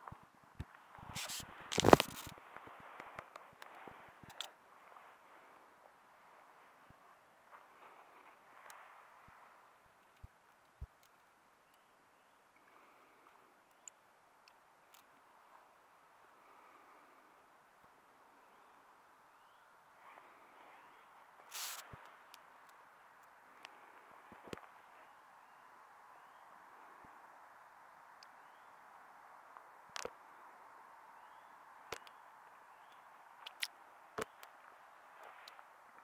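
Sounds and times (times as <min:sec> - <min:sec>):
faint steady hiss: 0:00.0 - 0:36.0
campfire crackling: 0:00.5 - 0:11.8.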